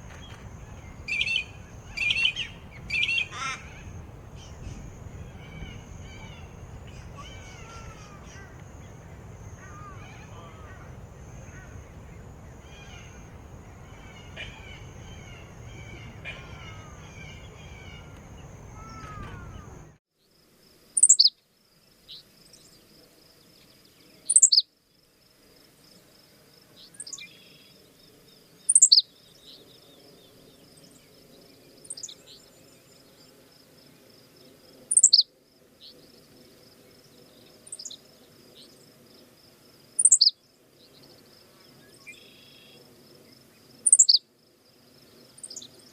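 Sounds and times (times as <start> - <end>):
steady high whine: 0.0 - 20.0
wild birds calling: 0.0 - 20.0
sharp downward sweeping bird call: 0.2 - 20.0.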